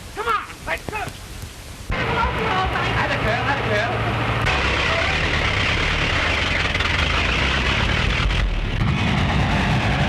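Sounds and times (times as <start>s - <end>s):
vehicle engine running: 1.9s - 10.0s.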